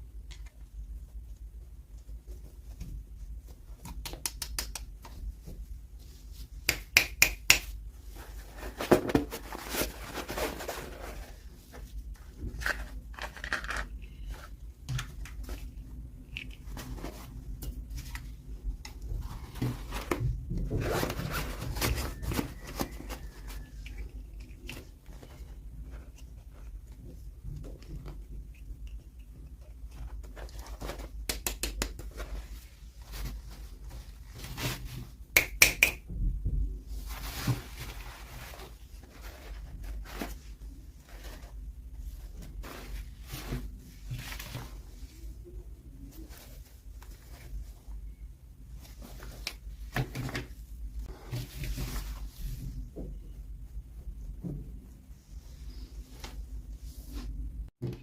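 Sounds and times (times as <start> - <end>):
packaging rustling and tearing: 20.8 - 24.0.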